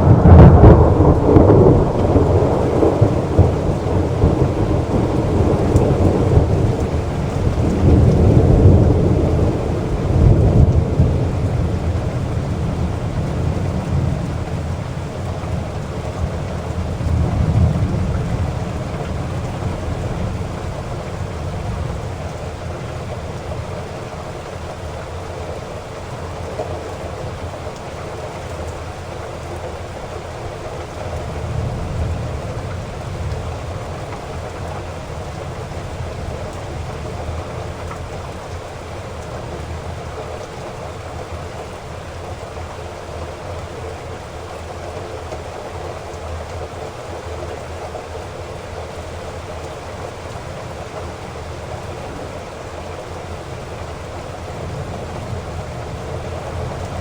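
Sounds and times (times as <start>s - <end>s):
rolling thunder: 0.0s - 25.0s, 31.0s - 42.1s
heavy rain falling: 0.0s - 57.0s.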